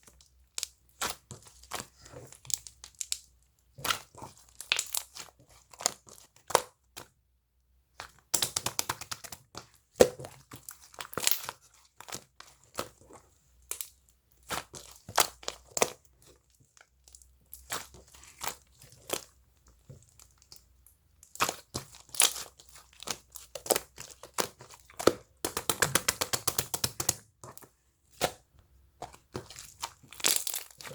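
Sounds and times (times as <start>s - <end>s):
slime squishing and crackling: 0.0s - 6.7s, 8.1s - 30.9s.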